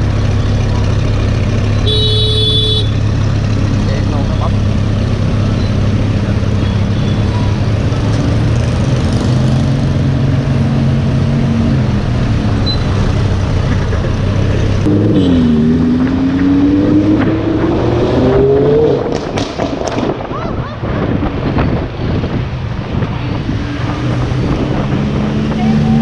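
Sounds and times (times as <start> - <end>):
sports car engine accelerating: 3.0 - 19.4.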